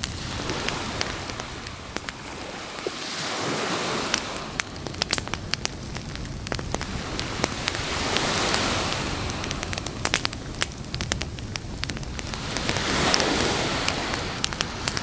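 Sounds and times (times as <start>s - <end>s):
campfire crackling and popping: 0.0s - 15.0s
waves washing on beach: 0.0s - 15.0s.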